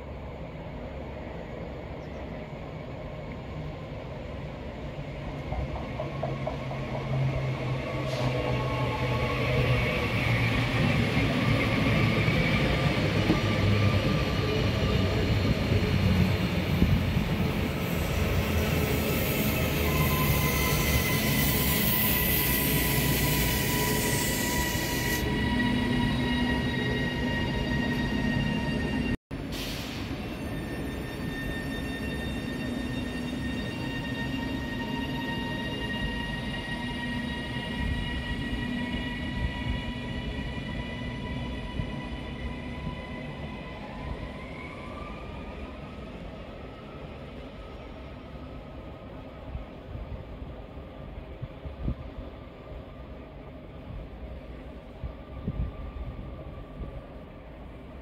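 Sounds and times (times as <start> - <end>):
electric train running past: 0.0 - 58.0
wheel squeal: 30.2 - 39.0.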